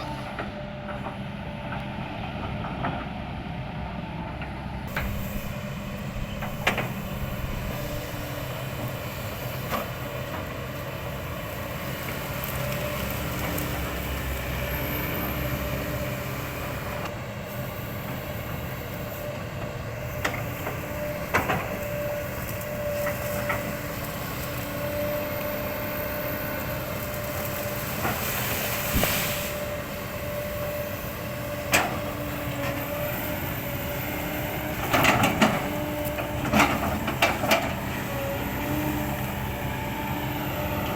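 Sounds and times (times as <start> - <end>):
excavator engine rumble: 0.0 - 40.9
hydraulic whine: 4.6 - 11.4.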